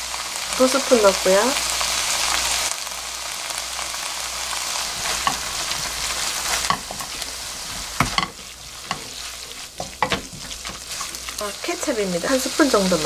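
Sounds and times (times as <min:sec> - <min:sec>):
food sizzling in a wok: 0:00.0 - 0:13.0
wooden spatula stirring: 0:04.9 - 0:11.4
spatula knocking on pan: 0:05.2 - 0:05.5, 0:06.6 - 0:07.1, 0:07.8 - 0:11.1.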